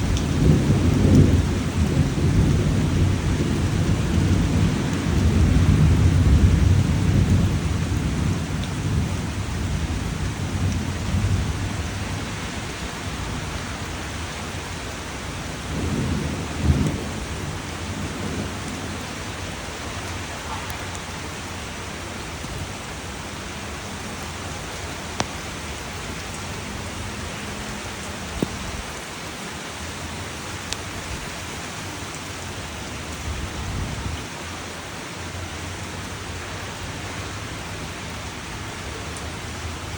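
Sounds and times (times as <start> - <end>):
rolling thunder: 0.0 - 14.5, 15.1 - 21.6
steady rain: 0.0 - 39.9
faint drip ticks: 25.1 - 25.4, 28.0 - 28.6.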